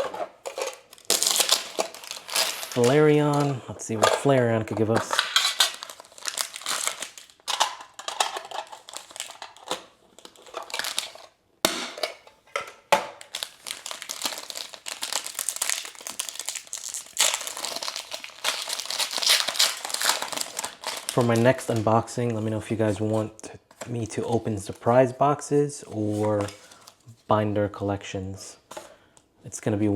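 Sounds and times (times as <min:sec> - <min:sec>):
plastic packaging crinkling: 0:00.0 - 0:11.4, 0:13.2 - 0:23.0.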